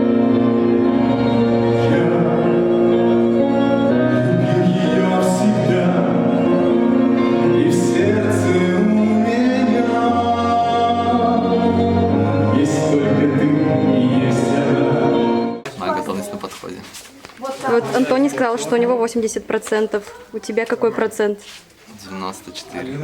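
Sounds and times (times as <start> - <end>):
voices singing held notes: 0.0 - 16.4
instrumental backing: 0.0 - 21.2.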